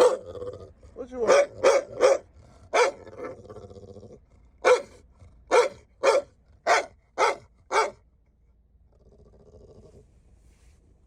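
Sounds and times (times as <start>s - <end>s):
dog barking: 0.0s - 0.3s, 1.2s - 3.4s, 4.6s - 8.0s
dog grumbling: 0.0s - 1.2s, 2.4s - 4.3s, 9.0s - 10.0s.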